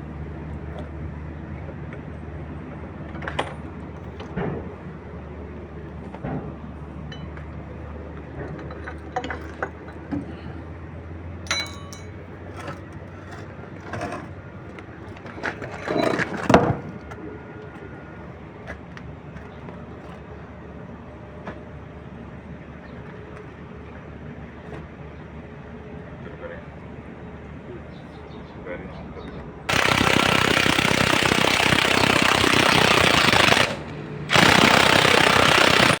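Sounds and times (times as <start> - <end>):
hand tools clinking on metal: 11.5 - 12.4.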